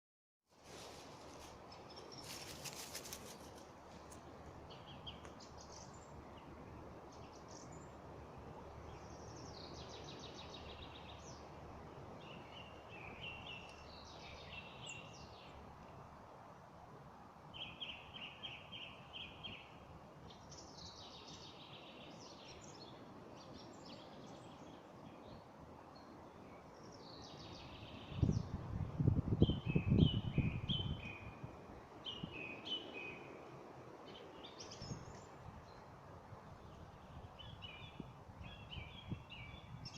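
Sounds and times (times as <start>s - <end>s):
songbirds chirping: 0.5s - 39.9s
steady background hiss: 30.6s - 39.9s.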